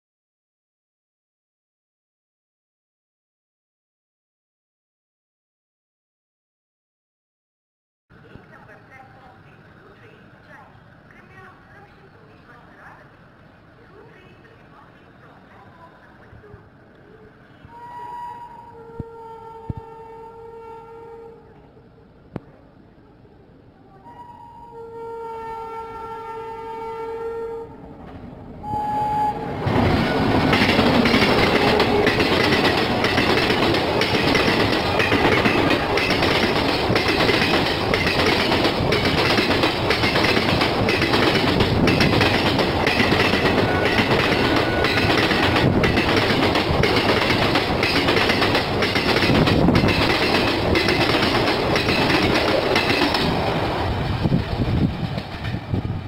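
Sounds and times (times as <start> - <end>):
train horn chord: 17.7 - 21.6, 24.0 - 27.8
train wheels rumbling and clicking: 27.9 - 28.6, 29.5 - 56.0.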